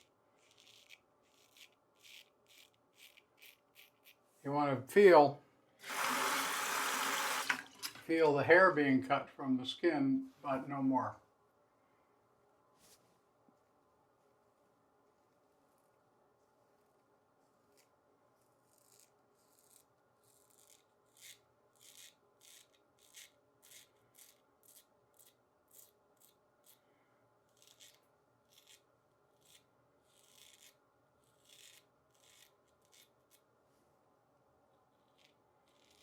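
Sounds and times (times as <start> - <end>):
razor scraping stubble: 0.0 - 4.2, 17.6 - 26.8, 27.5 - 33.4, 34.9 - 36.0.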